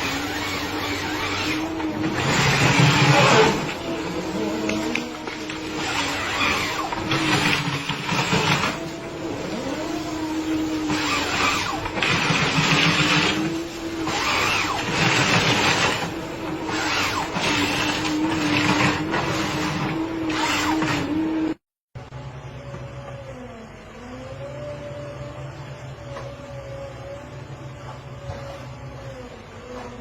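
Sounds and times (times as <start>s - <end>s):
chainsaw cutting wood: 0.0s - 8.9s, 10.9s - 21.1s.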